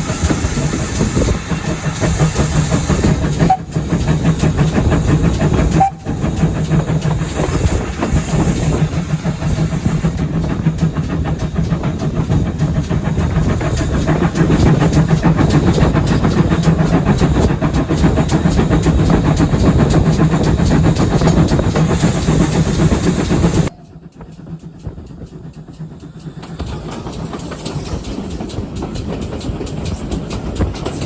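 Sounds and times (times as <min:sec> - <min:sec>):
train rumble: 0:00.0 - 0:31.0
train wheels clattering: 0:00.0 - 0:31.0.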